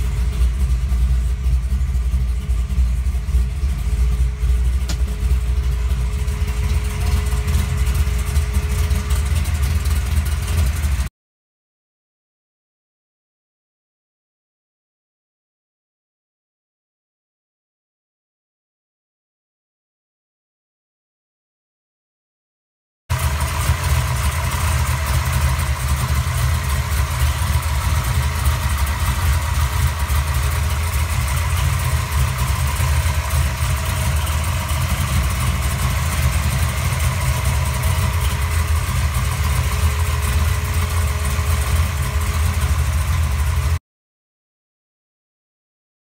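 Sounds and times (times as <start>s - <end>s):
car engine idling: 0.0s - 11.1s, 23.1s - 43.8s.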